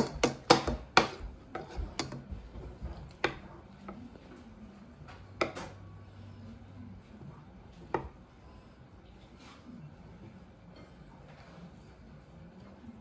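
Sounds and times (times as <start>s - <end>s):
utensils clinking against a bowl: 0.0s - 4.0s.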